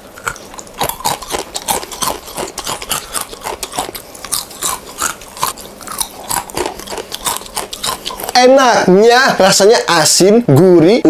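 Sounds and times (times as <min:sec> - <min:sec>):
crunching crispy snack: 0:00.0 - 0:08.4.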